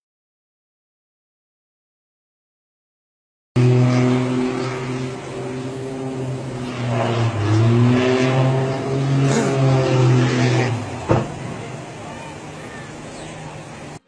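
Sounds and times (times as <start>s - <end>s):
engine droning: 3.6s - 14.0s.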